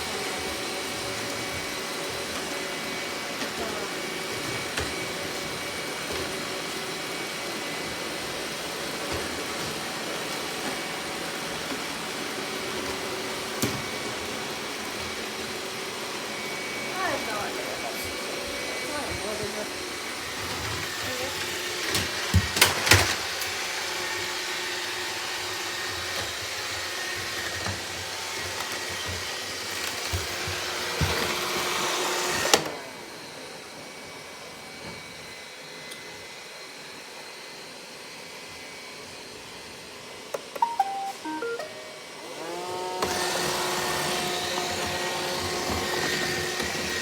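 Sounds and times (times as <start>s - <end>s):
robot vacuum cleaner running: 0.0s - 47.0s
falling beep tones: 40.6s - 42.3s.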